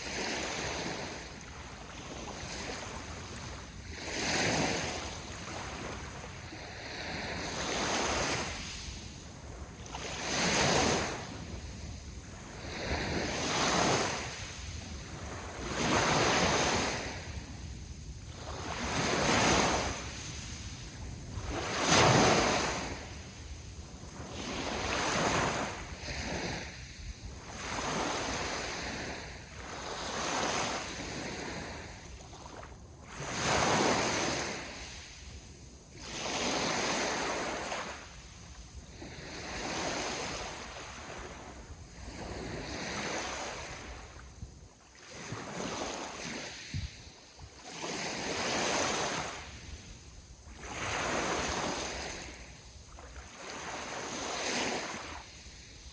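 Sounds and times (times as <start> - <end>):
ocean waves breaking: 0.0 - 35.1.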